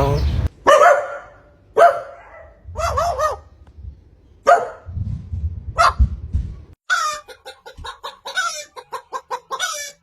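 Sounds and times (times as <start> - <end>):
bark-like animal calls: 0.6 - 3.5.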